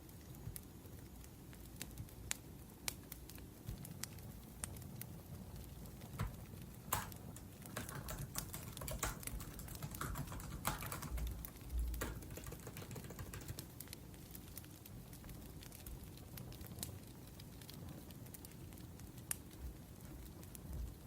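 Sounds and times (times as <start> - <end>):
laptop keyboard typing: 6.1 - 14.0.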